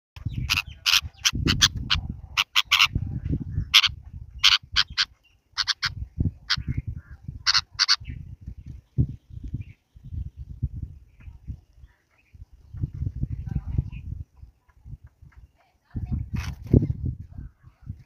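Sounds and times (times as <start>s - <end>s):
birds giving harsh calls: 0.2s - 9.8s.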